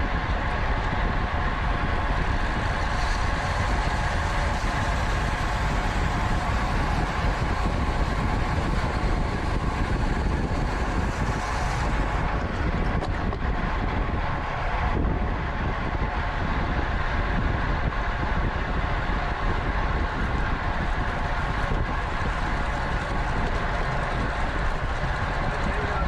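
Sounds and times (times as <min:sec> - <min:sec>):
bicycle tyre road noise: 0:00.0 - 0:26.0
wind on microphone: 0:00.0 - 0:26.0.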